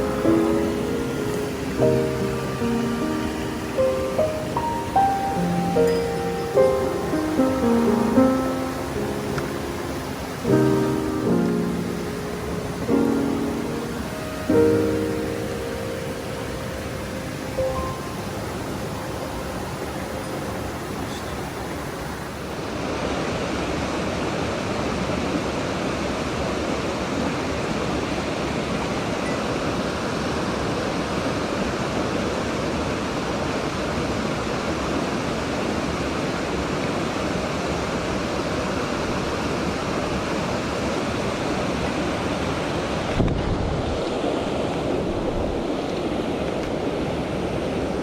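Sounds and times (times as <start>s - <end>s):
music: 0.0s - 21.0s
stream water rushing: 0.0s - 48.0s.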